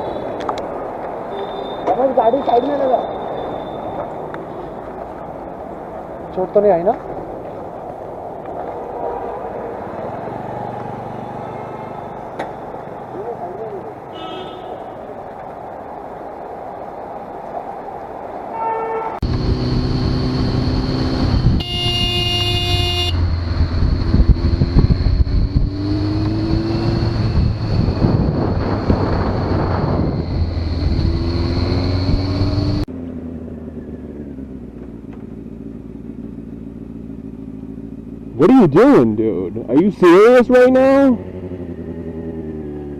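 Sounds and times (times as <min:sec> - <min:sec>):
engine and road noise: 0:00.0 - 0:42.9
vehicle horn honking: 0:14.1 - 0:15.0, 0:18.6 - 0:19.2, 0:21.5 - 0:23.2
engine revving: 0:19.2 - 0:35.6, 0:40.5 - 0:42.9.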